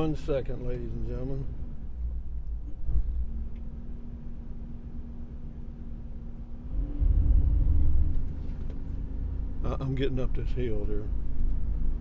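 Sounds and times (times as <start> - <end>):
vehicle engine revving: 6.6 - 9.8.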